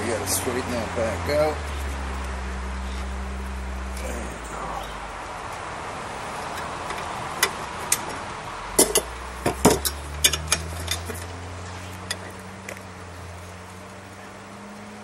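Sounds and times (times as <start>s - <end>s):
steady low hum: 0.0s - 14.4s
metal tools tapping on steel: 8.8s - 11.3s.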